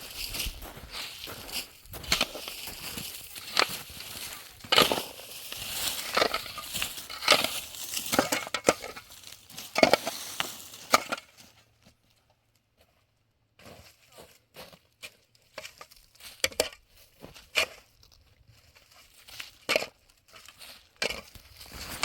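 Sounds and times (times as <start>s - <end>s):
crunching strikes and scrapes: 0.0s - 11.4s, 19.4s - 22.0s.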